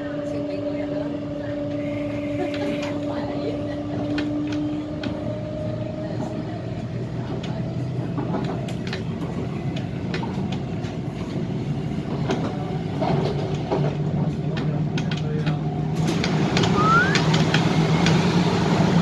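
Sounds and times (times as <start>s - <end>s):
train running hum: 0.0s - 19.0s
wheels clacking over rail joints: 6.2s - 18.3s.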